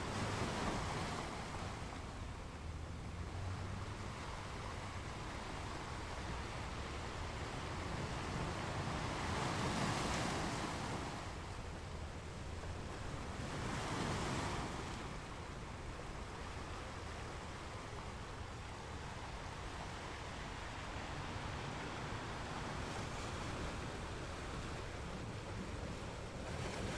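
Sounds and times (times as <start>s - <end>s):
sea waves splashing: 16.4s - 26.9s.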